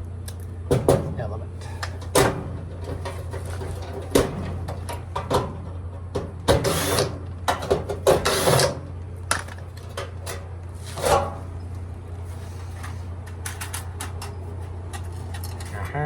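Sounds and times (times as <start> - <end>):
steady low hum: 0.0 - 16.0
scraping and rubbing: 9.8 - 11.6, 12.2 - 13.4.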